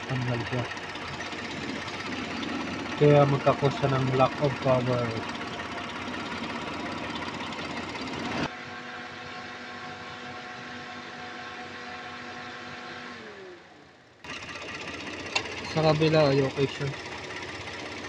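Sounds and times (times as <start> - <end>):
car engine running: 0.0 - 8.5, 14.2 - 18.0.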